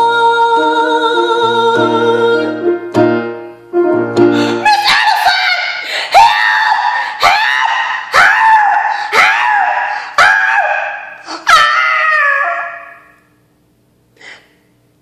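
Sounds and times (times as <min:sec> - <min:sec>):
woman imitating dog howling: 0:04.7 - 0:13.0.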